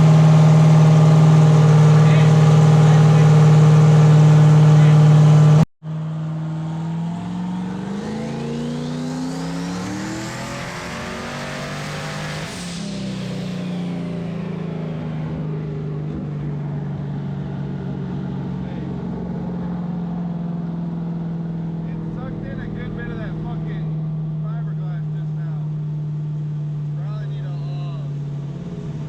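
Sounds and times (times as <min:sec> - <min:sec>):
vehicle engine accelerating: 0:00.0 - 0:29.0.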